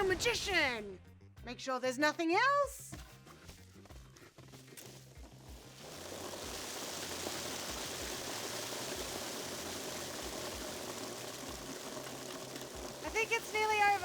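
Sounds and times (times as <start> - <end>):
steady rushing hiss: 5.3 - 14.0.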